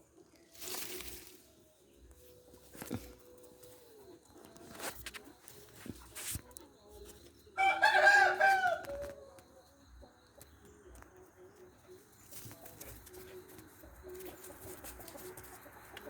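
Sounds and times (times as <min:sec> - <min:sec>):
rooster crowing: 0:07.6 - 0:09.3.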